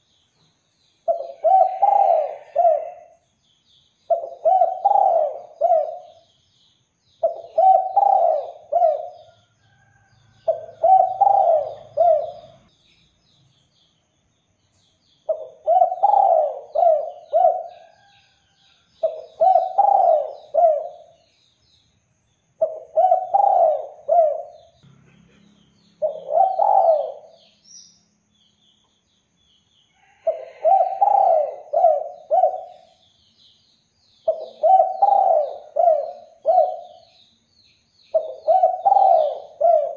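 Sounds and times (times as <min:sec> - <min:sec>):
small birds chirping: 0:00.0 - 0:39.9
dove cooing: 0:01.1 - 0:03.2, 0:04.1 - 0:06.2, 0:07.2 - 0:09.4, 0:10.4 - 0:12.7, 0:15.3 - 0:18.1, 0:19.0 - 0:21.2, 0:22.6 - 0:24.7, 0:26.0 - 0:27.4, 0:30.2 - 0:33.0, 0:34.2 - 0:37.0, 0:38.1 - 0:39.9.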